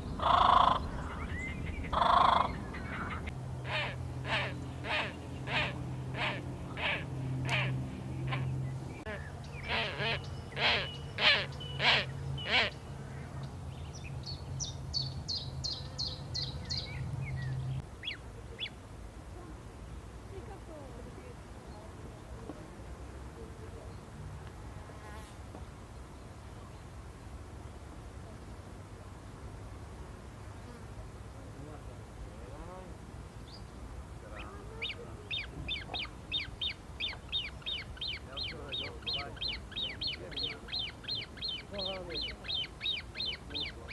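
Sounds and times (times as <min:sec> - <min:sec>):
bird chirps: 0:07.5 - 0:18.8, 0:34.3 - 0:43.9
small bird singing: 0:08.2 - 0:18.8, 0:33.4 - 0:43.9.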